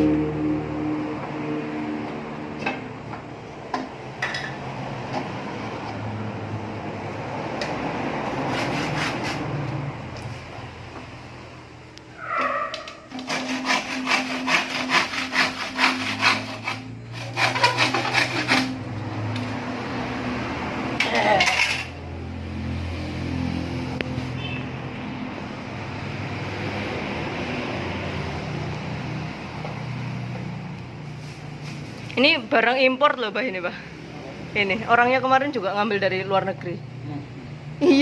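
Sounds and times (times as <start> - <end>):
hand tool rasping scraping: 12.2 - 18.8.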